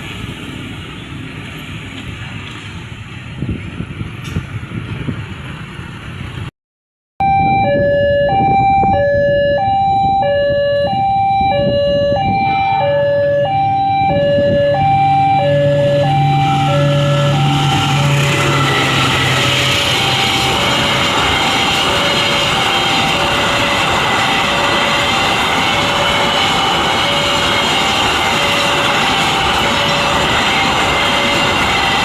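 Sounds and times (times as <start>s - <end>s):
level crossing two-tone alarm: 7.2s - 32.0s.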